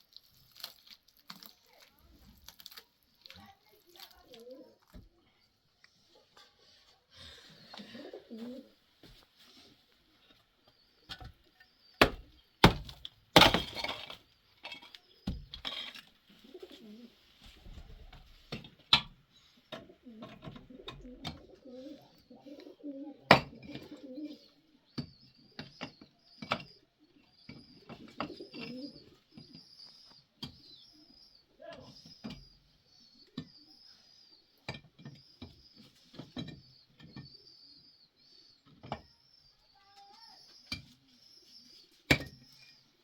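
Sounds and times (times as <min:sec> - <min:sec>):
small birds chirping: 0:00.0 - 0:13.4, 0:14.0 - 0:43.0
pigeons cooing: 0:04.2 - 0:04.9, 0:07.3 - 0:08.8, 0:16.3 - 0:18.1, 0:19.6 - 0:34.6.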